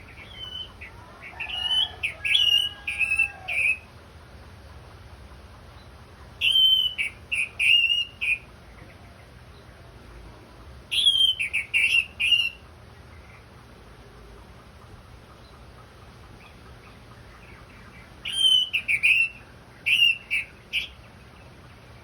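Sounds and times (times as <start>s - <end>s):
bird whistling song: 0.0s - 3.9s, 6.4s - 8.5s, 10.9s - 12.6s, 17.7s - 21.1s.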